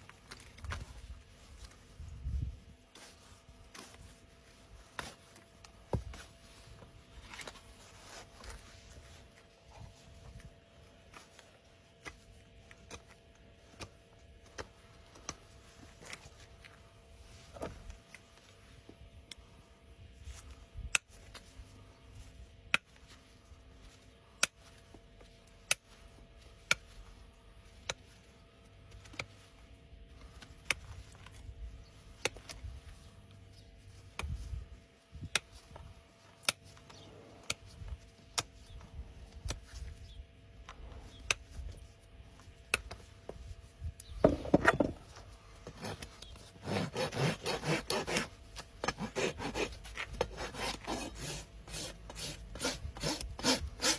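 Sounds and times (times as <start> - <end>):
hoof rasp filing a hoof: 45.6 - 53.9.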